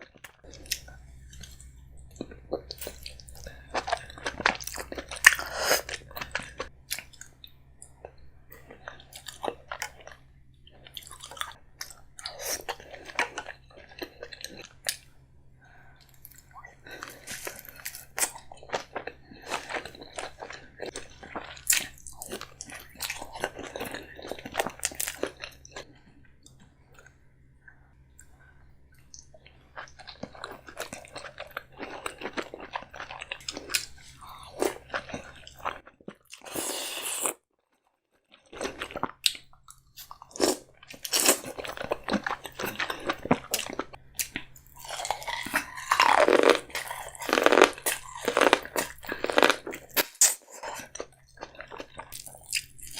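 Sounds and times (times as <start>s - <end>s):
wet chewing: 38.4s - 52.9s.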